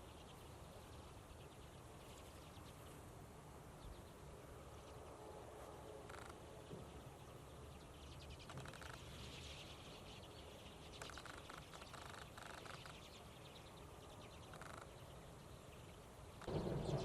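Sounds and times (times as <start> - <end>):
birds rattling chatter: 7.8 - 17.0
steady low rumble: 16.0 - 17.0.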